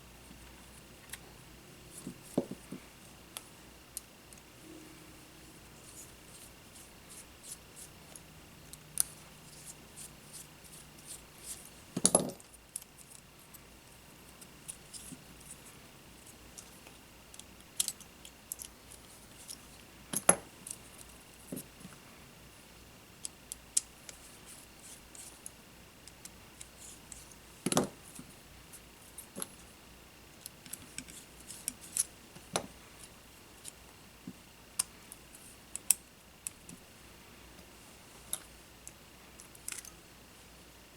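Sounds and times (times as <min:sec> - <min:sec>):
faint high whine: 0:00.0 - 0:09.6
light clicks and taps of tools: 0:38.3 - 0:40.0.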